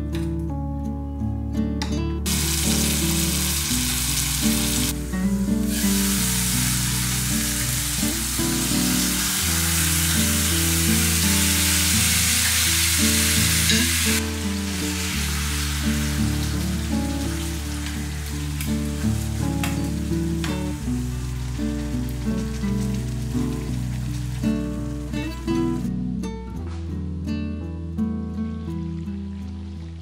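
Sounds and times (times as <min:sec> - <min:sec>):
background music: 0:00.0 - 0:30.0
food sizzling in hot oil: 0:02.3 - 0:25.2.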